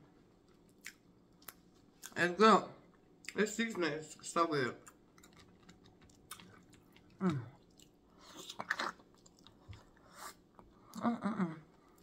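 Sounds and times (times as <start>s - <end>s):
close-up chewing: 4.8s - 11.0s
person humming mm: 7.2s - 7.6s, 10.9s - 11.8s.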